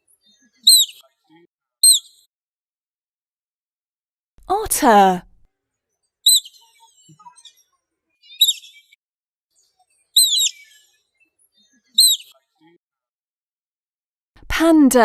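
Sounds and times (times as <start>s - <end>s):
otter chirping: 0.6s - 1.0s, 1.8s - 2.2s, 6.3s - 7.6s, 8.2s - 9.0s, 10.2s - 10.9s, 12.0s - 12.3s.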